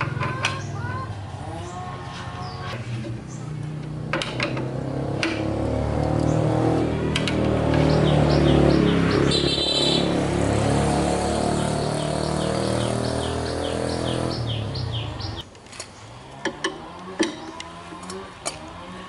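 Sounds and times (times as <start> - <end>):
engine running: 0.0 - 19.0
high repeating chirp: 7.8 - 10.2.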